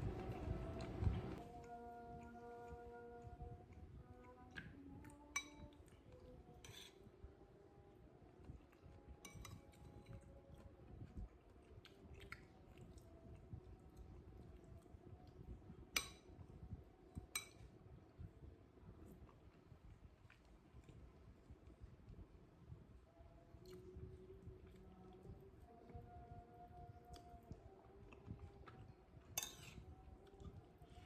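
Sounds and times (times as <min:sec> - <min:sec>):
faint background music: 0:00.0 - 0:31.0
spoon clinking on plate: 0:17.3 - 0:17.7, 0:29.4 - 0:29.8.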